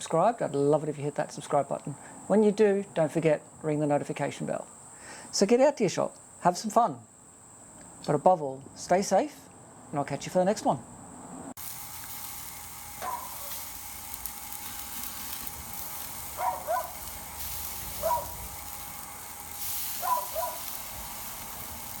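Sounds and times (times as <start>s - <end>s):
steady hiss: 11.6s - 22.0s.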